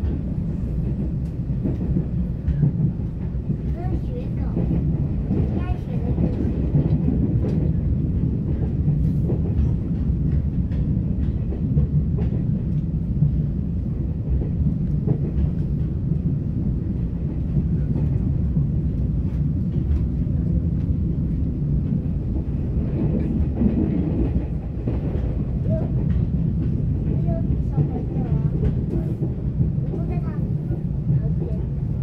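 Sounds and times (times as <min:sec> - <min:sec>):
train interior low rumble: 0:00.0 - 0:32.0.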